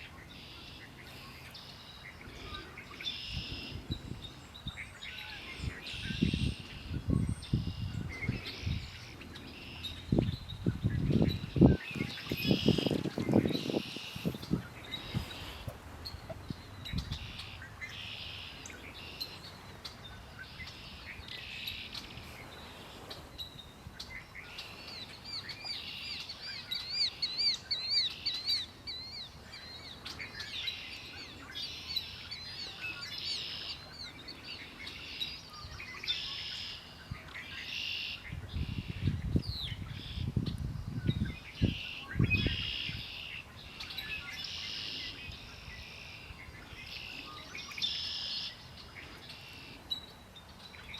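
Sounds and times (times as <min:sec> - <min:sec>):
songbirds singing: 0:00.0 - 0:50.9.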